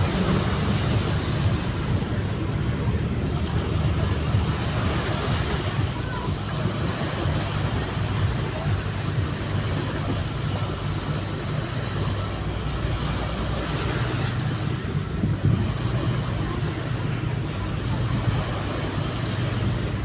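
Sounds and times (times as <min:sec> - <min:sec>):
ship engine drone: 0:00.0 - 0:20.0
wind buffeting microphone: 0:00.0 - 0:20.0.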